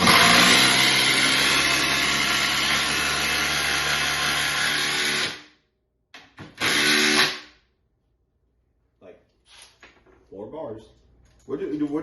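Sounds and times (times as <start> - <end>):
cordless power tool running: 0.0 - 5.4, 6.5 - 7.4.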